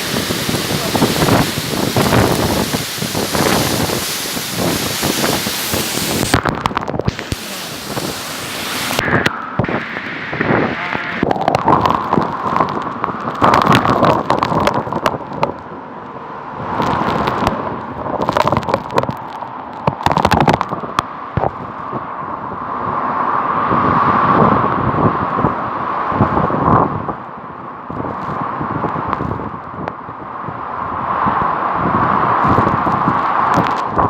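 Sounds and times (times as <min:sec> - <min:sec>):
gusty wind buffeting microphone: 0:00.0 - 0:34.0
sharp cracks and knocks: 0:11.2 - 0:15.6, 0:16.8 - 0:21.6, 0:32.4 - 0:34.0.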